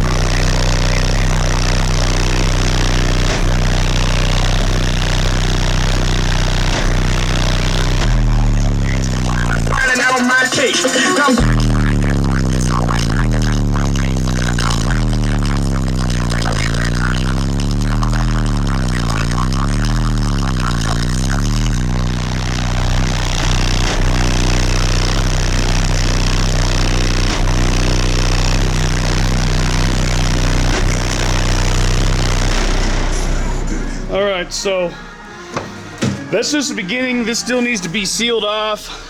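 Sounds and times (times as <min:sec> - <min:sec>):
loud bass from car subwoofers: 0:00.0 - 0:39.0.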